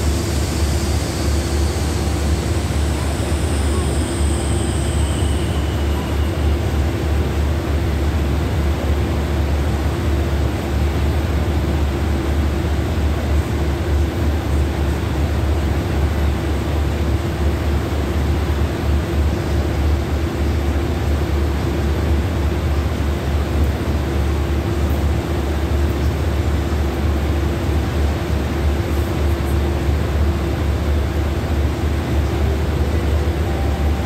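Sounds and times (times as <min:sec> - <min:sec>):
droning hum: 0:00.0 - 0:08.0
train carriage rumbling: 0:00.0 - 0:34.0.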